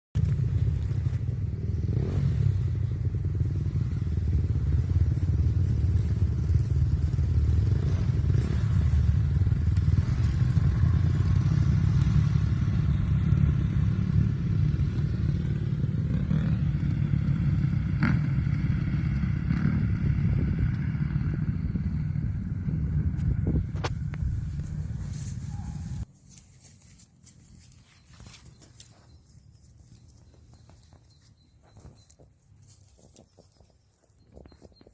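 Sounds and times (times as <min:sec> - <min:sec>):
motocross engines rumbling: 0:00.2 - 0:26.1.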